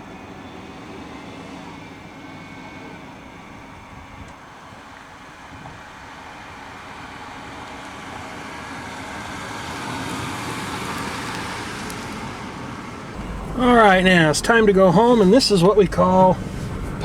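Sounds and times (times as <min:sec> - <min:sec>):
car engine and road noise: 0:13.1 - 0:17.0.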